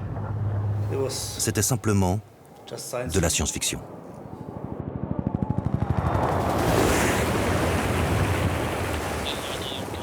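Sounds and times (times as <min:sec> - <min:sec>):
wind and sea noise: 0:00.0 - 0:10.0
helicopter rotor beating: 0:04.8 - 0:07.2.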